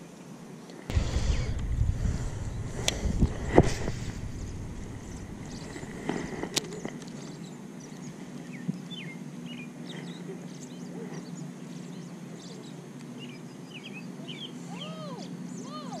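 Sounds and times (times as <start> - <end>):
steady low hum: 0.9 - 8.4
small birds chirping: 4.2 - 16.0.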